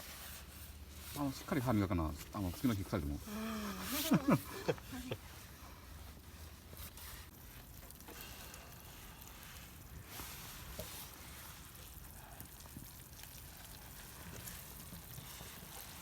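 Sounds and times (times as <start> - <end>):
meat sizzling on a grill: 6.4 - 16.0.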